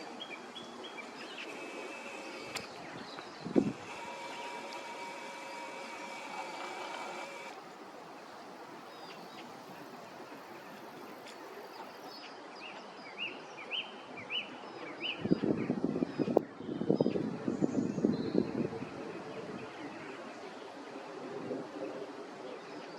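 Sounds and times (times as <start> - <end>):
faint hum: 0.0 - 12.2
steady outdoor hiss: 0.0 - 22.9.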